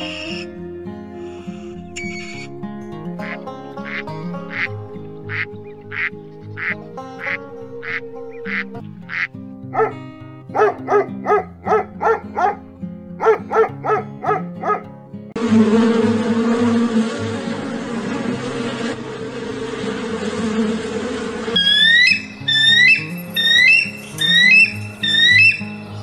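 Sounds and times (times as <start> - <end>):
duck quacking rapidly: 0.0 - 0.5, 3.2 - 12.6
loud even buzz: 15.4 - 25.7
music with plinking beat: 21.6 - 26.0.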